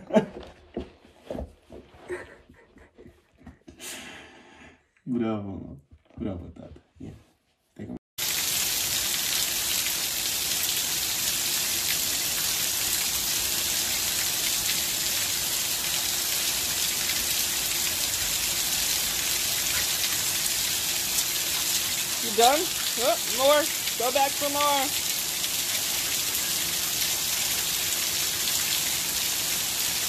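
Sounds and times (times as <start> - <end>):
heavy rain falling: 8.2 - 30.0.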